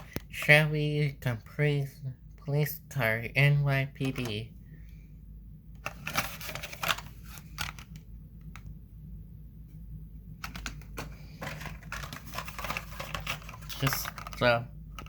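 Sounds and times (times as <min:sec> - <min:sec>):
toy car and packaging clicking: 0:10.4 - 0:15.0.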